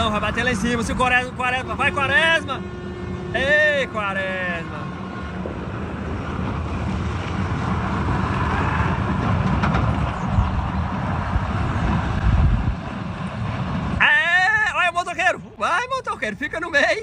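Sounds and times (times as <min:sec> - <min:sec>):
wind noise on microphone: 0:04.8 - 0:14.8
truck engine under load: 0:05.0 - 0:14.0.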